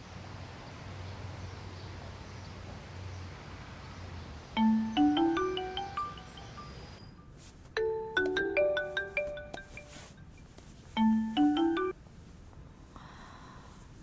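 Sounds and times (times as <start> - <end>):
marimba ringtone: 4.6 - 7.0, 7.8 - 10.2, 11.0 - 12.0.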